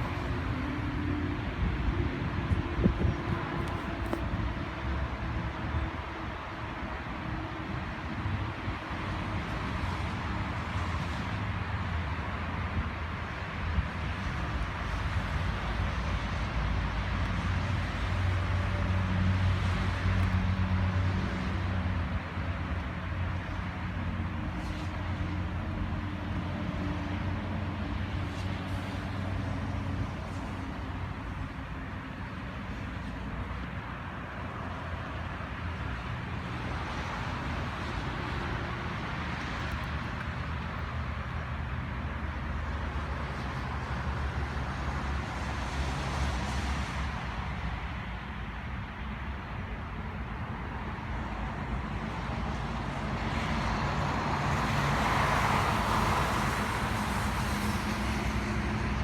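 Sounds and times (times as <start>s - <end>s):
vehicle engine hum: 0.0s - 12.9s
road noise: 0.0s - 59.0s.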